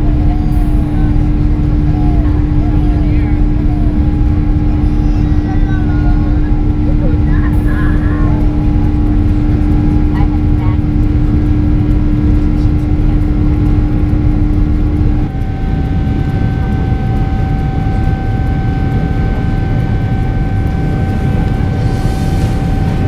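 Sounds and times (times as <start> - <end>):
jet engine rumble in cabin: 0.0 - 23.0.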